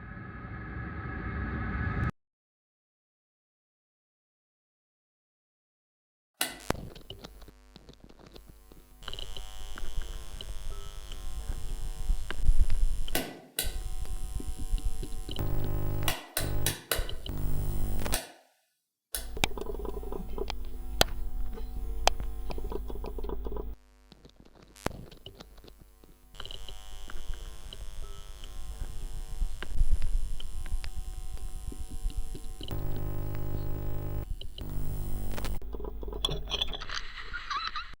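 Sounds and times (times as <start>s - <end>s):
crackling clicks: 6.4s - 18.2s, 19.2s - 25.8s, 29.3s - 36.4s
electrical buzzing hum: 6.5s - 18.2s, 19.2s - 36.2s.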